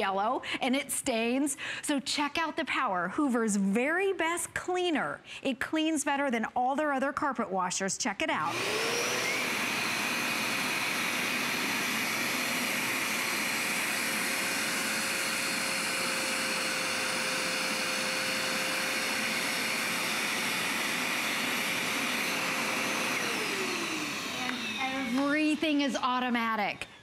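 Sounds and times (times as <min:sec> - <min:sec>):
carpet cleaner motor whine: 0:08.5 - 0:27.0.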